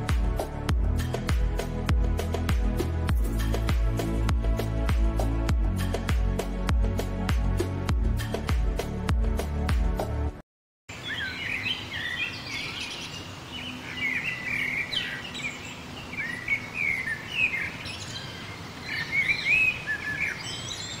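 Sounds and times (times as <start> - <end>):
birds chirping: 10.9 - 21.0.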